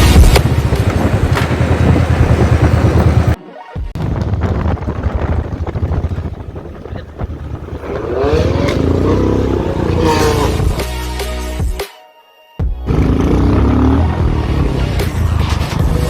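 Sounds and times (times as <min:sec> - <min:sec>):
motorcycle engine revving: 0:00.0 - 0:03.4, 0:04.2 - 0:11.2, 0:12.8 - 0:15.2.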